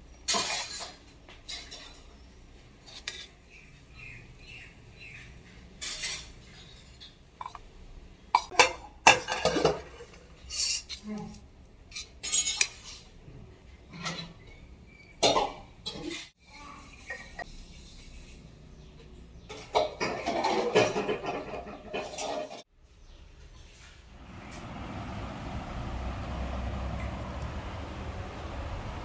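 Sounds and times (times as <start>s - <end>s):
dishes and cutlery clinking: 0.2s - 3.4s, 5.1s - 7.7s, 8.4s - 11.2s, 11.9s - 13.1s, 15.2s - 16.4s, 19.4s - 22.7s.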